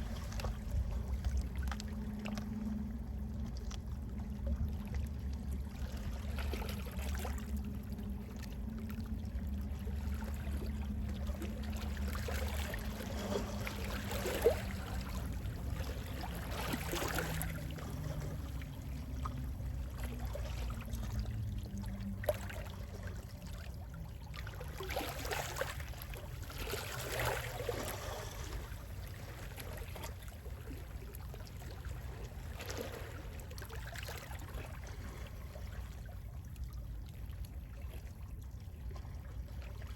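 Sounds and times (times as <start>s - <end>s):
low steady rumble: 0.0s - 39.9s
sea waves washing in: 24.7s - 29.7s.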